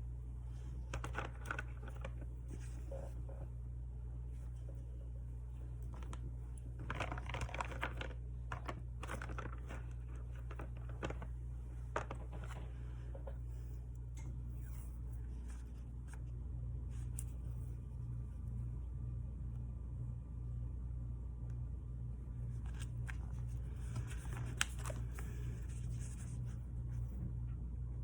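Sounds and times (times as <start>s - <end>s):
low hum: 0.0s - 28.0s
paper and tape rustling: 0.6s - 3.2s, 5.8s - 13.3s, 22.5s - 27.1s.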